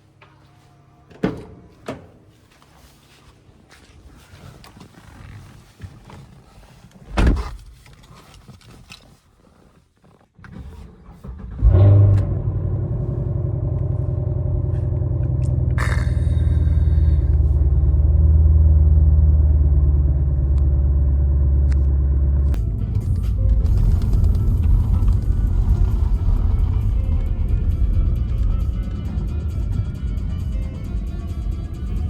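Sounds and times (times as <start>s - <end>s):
thump: 7.2s - 7.6s
car engine starting and idling: 10.5s - 32.0s.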